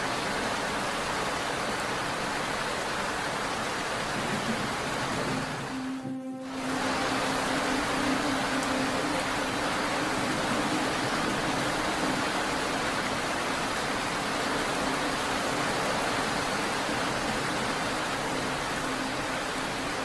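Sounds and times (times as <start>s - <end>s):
rain falling: 0.0s - 20.0s
low hum: 5.6s - 20.0s.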